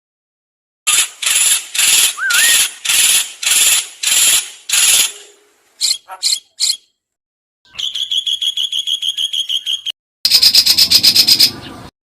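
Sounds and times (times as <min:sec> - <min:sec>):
songbird harsh rasping call: 0:01.2 - 0:06.9, 0:07.7 - 0:11.6
short wavering whistle: 0:02.2 - 0:02.7.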